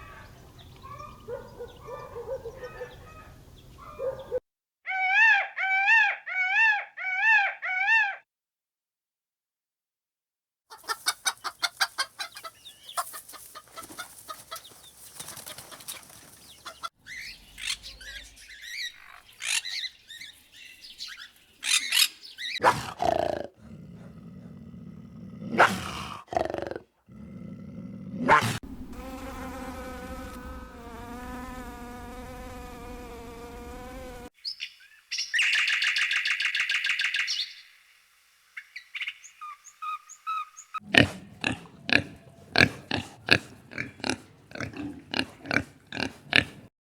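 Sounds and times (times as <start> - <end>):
assorted animal calls: 0.0 - 8.2, 16.6 - 23.6, 38.6 - 46.7.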